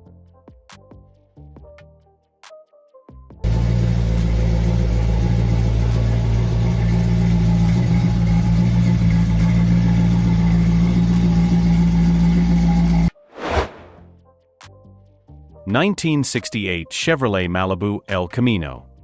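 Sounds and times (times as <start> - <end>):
car engine idling: 3.4 - 13.1.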